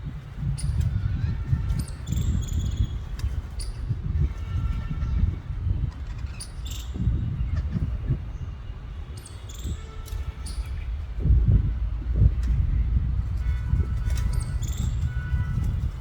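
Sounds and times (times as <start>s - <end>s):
low rumble: 10.4s - 16.0s.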